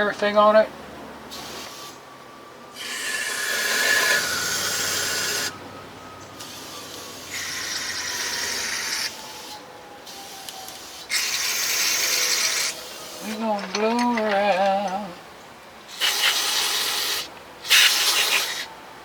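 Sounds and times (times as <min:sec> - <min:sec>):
compressed air blow gun hissing: 0:01.3 - 0:01.9, 0:02.8 - 0:05.5, 0:06.4 - 0:13.3, 0:15.9 - 0:18.7.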